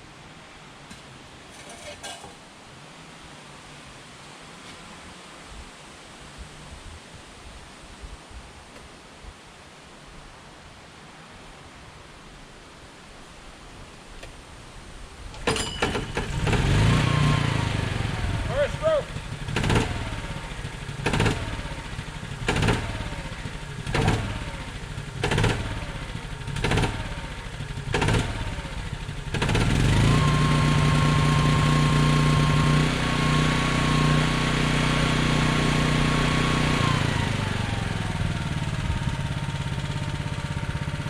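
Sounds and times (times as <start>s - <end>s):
generator engine running: 15.4s - 41.0s.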